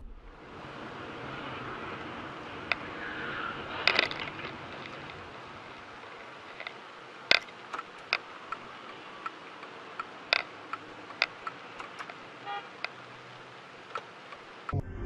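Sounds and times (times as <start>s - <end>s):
steady background noise: 0.0s - 15.0s
sharp clicks and knocks: 3.8s - 5.2s, 5.9s - 12.2s.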